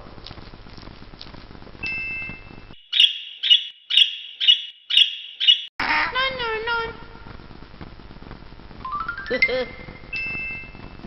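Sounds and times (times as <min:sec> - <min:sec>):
electronic chirps: 0:01.8 - 0:05.7.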